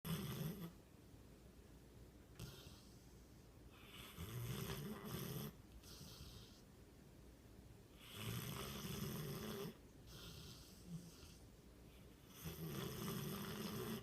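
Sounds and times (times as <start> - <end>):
dog snoring: 0.0 - 0.8, 2.3 - 6.6, 7.9 - 11.5, 12.2 - 14.0
dog breathing faintly: 2.3 - 6.8, 7.9 - 14.0.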